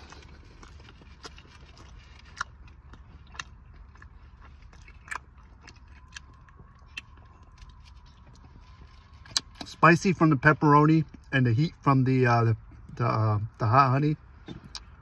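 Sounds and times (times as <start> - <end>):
person chewing food: 0.0 - 9.7, 14.3 - 15.0.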